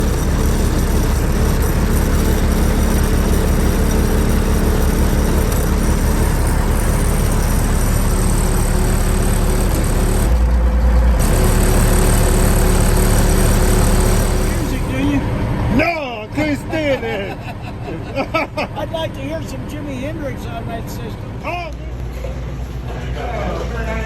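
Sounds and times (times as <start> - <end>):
low hum: 0.0 - 15.8
diesel engine idling: 0.0 - 24.0.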